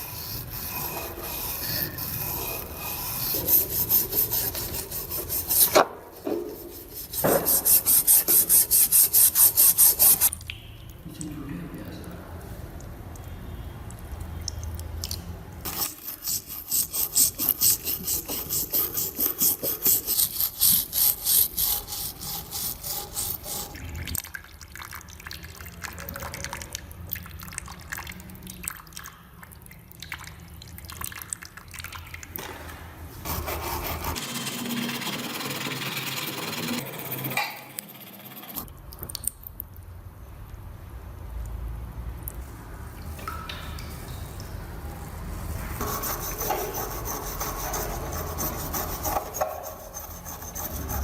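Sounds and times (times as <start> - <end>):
scrubbing metal parts: 0.0 - 10.3, 15.7 - 24.1, 45.8 - 51.0.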